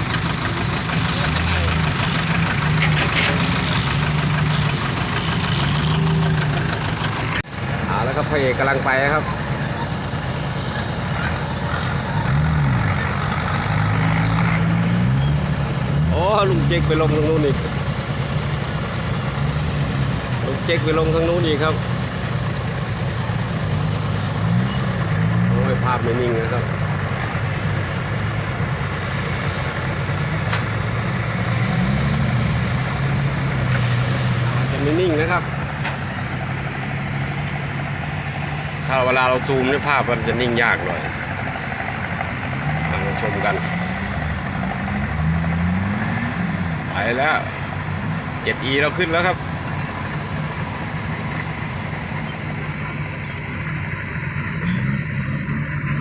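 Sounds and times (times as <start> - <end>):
truck engine revving: 0.0 - 56.0
sharp hiss: 30.4 - 30.9.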